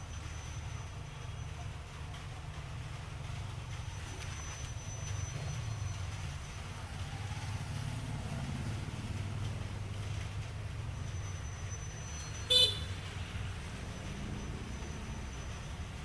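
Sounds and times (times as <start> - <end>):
diesel locomotive engine rumbling: 0.0 - 16.0.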